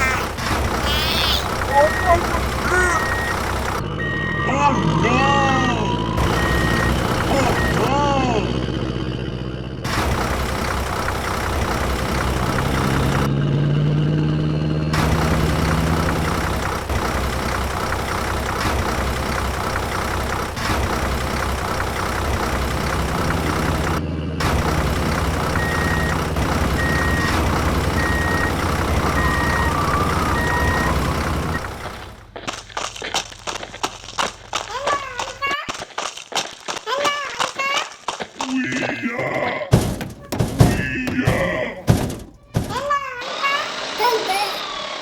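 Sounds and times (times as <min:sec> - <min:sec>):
vehicle engine running: 0:00.0 - 0:36.8, 0:38.6 - 0:43.2
reversing beeps: 0:00.9 - 0:07.9, 0:25.5 - 0:31.7.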